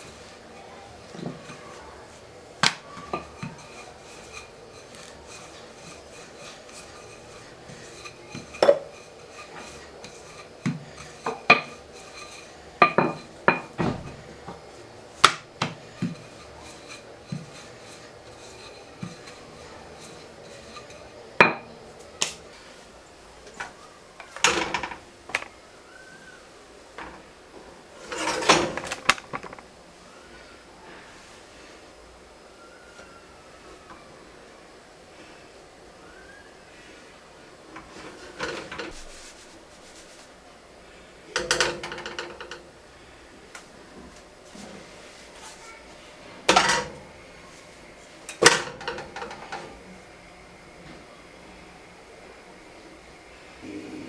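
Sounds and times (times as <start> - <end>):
scraping rustle: 0.0 - 14.9, 15.8 - 21.2, 27.9 - 29.8, 37.7 - 40.4, 44.0 - 49.8
utensils and dishes clinking: 0.9 - 21.8, 23.5 - 25.6, 27.9 - 29.7, 37.8 - 39.2, 41.3 - 42.7, 46.4 - 47.2, 48.3 - 49.8.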